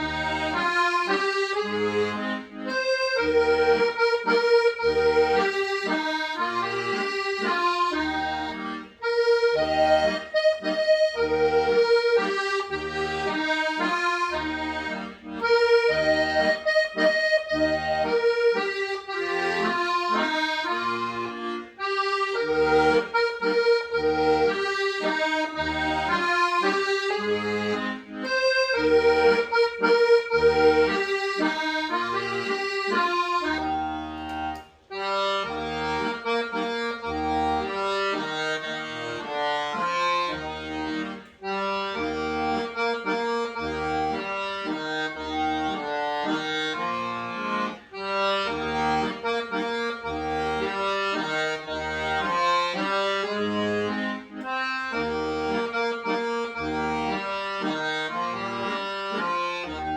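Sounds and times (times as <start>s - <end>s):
accordion playing a hymn: 0.0s - 59.9s.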